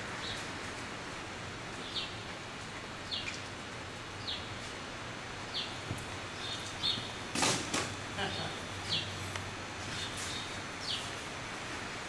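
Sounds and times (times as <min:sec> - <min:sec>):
steady hiss: 0:00.0 - 0:12.0
small bird chirping: 0:05.5 - 0:07.2, 0:08.2 - 0:09.2, 0:09.9 - 0:11.1.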